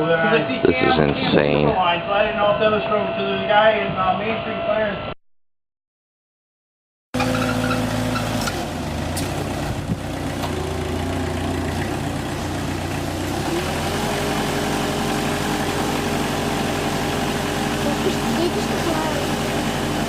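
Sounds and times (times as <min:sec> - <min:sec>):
engine running: 0:07.2 - 0:20.0.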